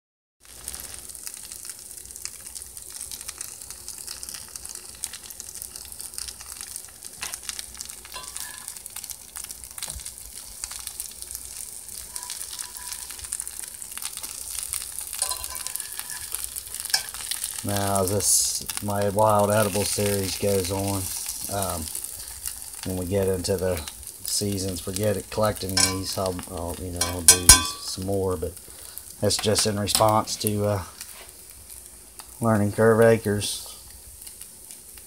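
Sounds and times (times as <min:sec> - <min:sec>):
slices sizzling in butter: 0:00.4 - 0:35.0
fork knocking on skillet: 0:08.2 - 0:08.7, 0:15.2 - 0:16.3, 0:16.9 - 0:17.2, 0:25.8 - 0:26.1, 0:27.0 - 0:27.9.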